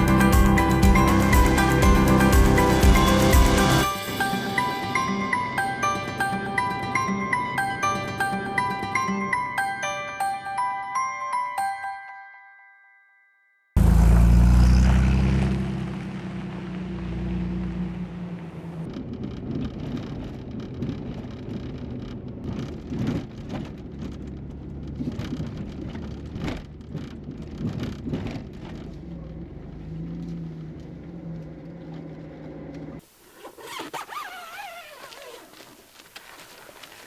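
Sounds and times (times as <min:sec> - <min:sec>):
car engine running: 0:00.0 - 0:03.8, 0:13.8 - 0:33.0
tyre and road noise: 0:13.8 - 0:33.0.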